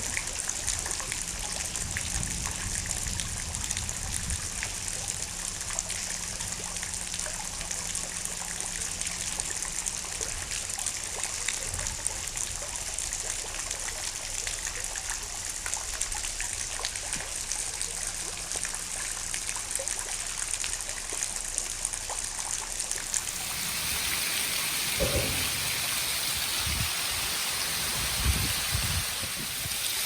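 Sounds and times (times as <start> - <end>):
rain pattering and dripping: 0.0 - 30.0
low thumps: 25.0 - 26.9.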